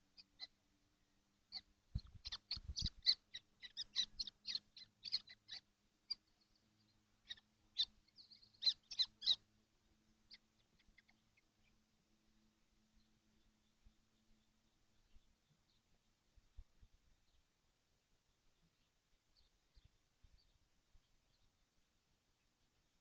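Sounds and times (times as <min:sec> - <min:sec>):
kestrel chicks calling: 0:00.0 - 0:00.6, 0:01.5 - 0:09.5, 0:10.1 - 0:11.8
faint steady hum: 0:00.0 - 0:23.0.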